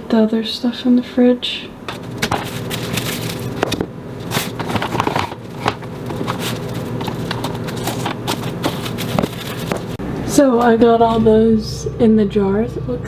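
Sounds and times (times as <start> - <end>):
plastic wrap crinkling: 1.9 - 10.0
low hum: 5.4 - 13.0.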